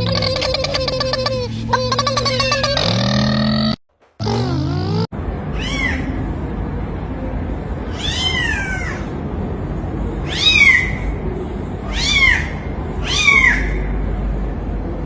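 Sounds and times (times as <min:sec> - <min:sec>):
low background rumble: 0:00.0 - 0:03.7.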